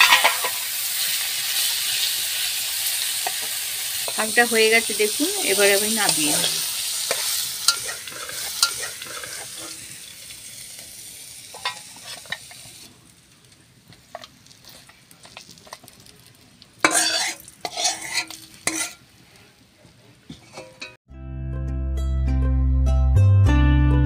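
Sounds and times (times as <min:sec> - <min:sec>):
metal spatula scraping wok: 0:00.0 - 0:12.9, 0:13.9 - 0:19.5, 0:20.3 - 0:21.0
greens sizzling in oil: 0:00.0 - 0:21.0.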